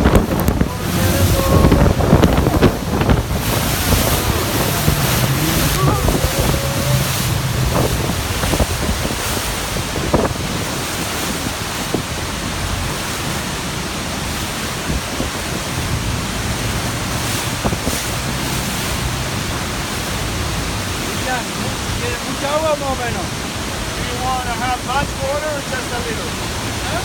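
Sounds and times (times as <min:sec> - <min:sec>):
wind buffeting microphone: 0:00.0 - 0:22.6
boat engine humming: 0:00.0 - 0:27.0
waterfall roaring: 0:00.0 - 0:27.0.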